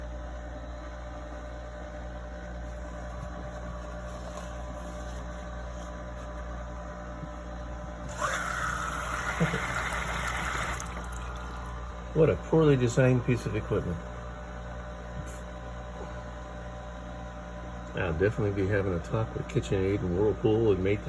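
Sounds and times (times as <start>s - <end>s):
dishwasher electrical hum: 0.0s - 21.0s
water flowing hiss: 8.2s - 11.6s.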